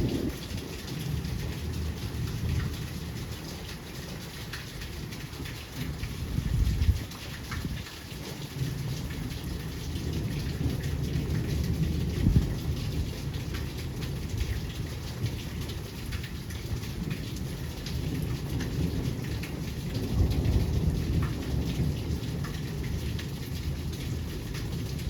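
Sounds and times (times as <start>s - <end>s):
low rumble: 0.0s - 0.5s
heavy rain falling: 0.0s - 25.0s.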